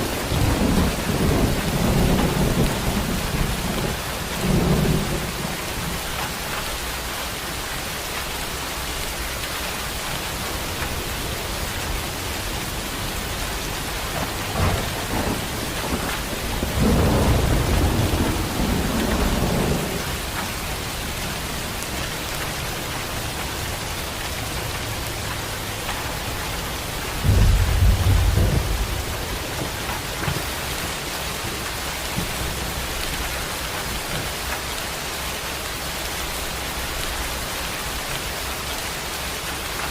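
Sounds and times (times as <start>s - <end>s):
thunder rumbling: 0.0s - 6.9s, 10.9s - 23.9s, 25.0s - 34.4s
heavy rain: 0.0s - 39.9s.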